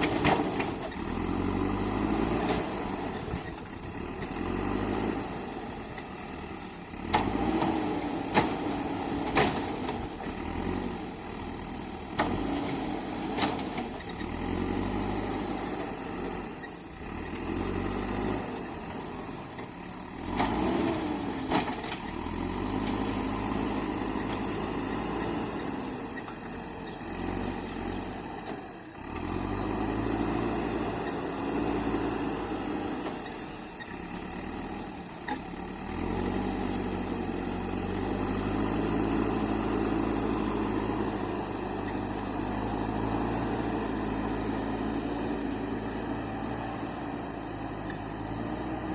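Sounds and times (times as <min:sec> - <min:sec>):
diesel engine revving: 0:00.0 - 0:48.9.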